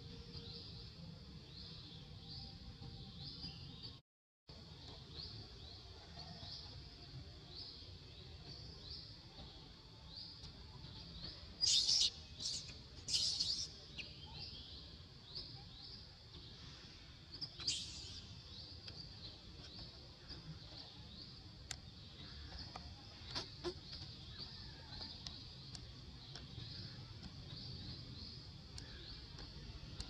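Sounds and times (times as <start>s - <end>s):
bird chirping: 7.6s - 16.7s, 17.3s - 30.0s.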